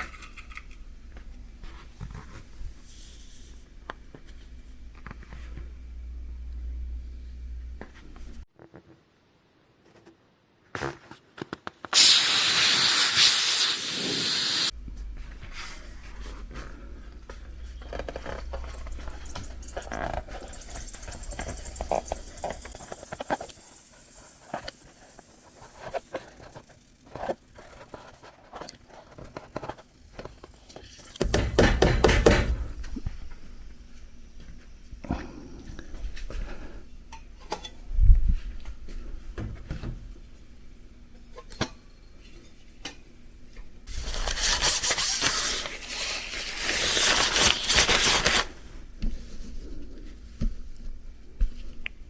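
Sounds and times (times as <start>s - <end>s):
low steady hum: 0.0s - 8.4s
compressed air hissing: 11.9s - 14.7s, 18.5s - 26.4s.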